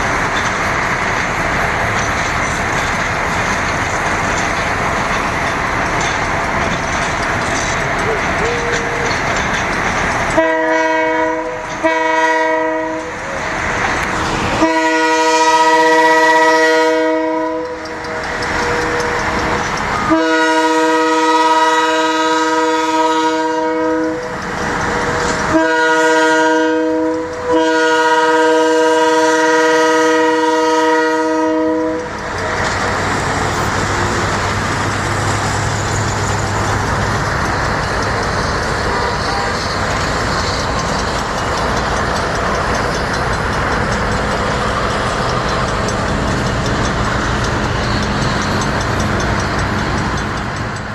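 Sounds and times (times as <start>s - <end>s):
train rumbling: 0.0s - 50.9s
locomotive air horn blasts: 10.4s - 13.4s, 14.6s - 17.8s, 20.0s - 24.3s, 25.5s - 32.1s.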